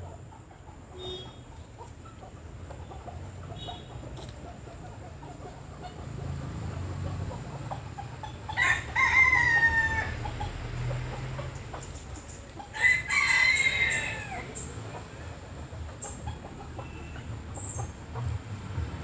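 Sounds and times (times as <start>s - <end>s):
rooster crowing: 8.5s - 10.5s, 12.7s - 14.6s.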